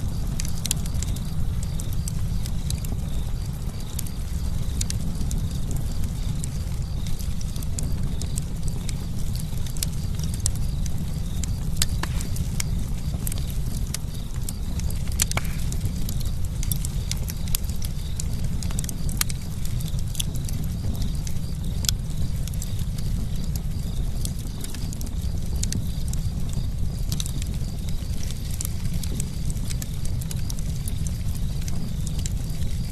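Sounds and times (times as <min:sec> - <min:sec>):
campfire crackling: 0:00.0 - 0:32.9
low rumble: 0:11.0 - 0:17.2.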